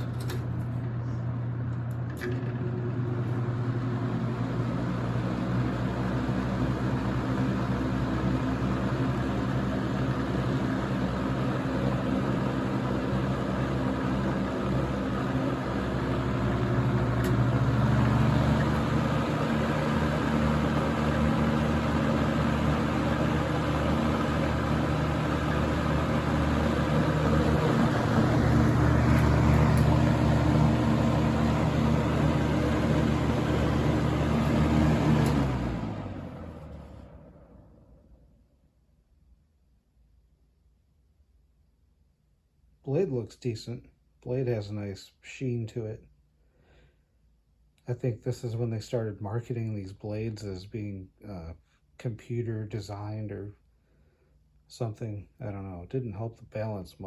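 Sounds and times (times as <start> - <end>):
box fan humming with air rush: 0.0 - 37.8
click: 17.2 - 17.4, 35.2 - 35.4.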